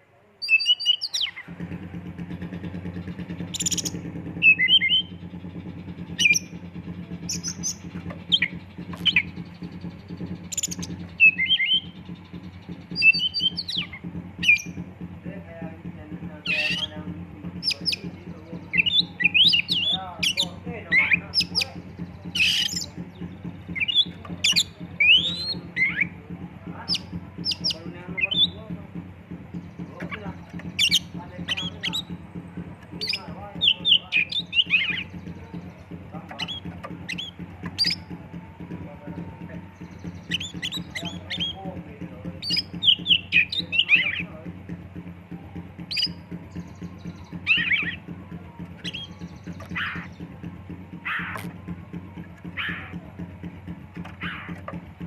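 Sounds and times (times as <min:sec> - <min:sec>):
bird singing whistled notes: 0:00.4 - 0:01.5, 0:02.6 - 0:14.9, 0:15.8 - 0:55.0
steady low hum: 0:01.4 - 0:55.0
harsh rasping bird call: 0:17.6 - 0:26.2, 0:42.4 - 0:51.7, 0:52.4 - 0:53.0, 0:53.7 - 0:54.8.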